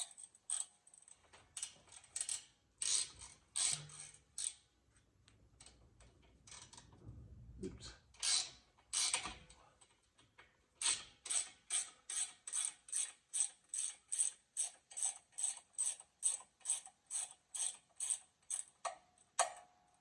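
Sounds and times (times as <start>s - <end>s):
ratchet wrench clicking: 0.0s - 4.7s, 8.2s - 9.4s, 10.8s - 19.0s.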